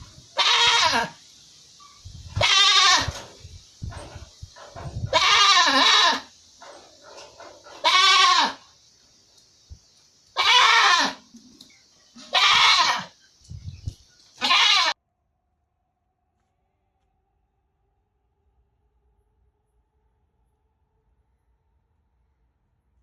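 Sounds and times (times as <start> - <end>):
animal bleating: 0.4 - 1.2, 2.4 - 3.2, 5.0 - 6.3, 7.8 - 8.6, 10.4 - 11.3, 12.2 - 13.1, 14.4 - 15.0.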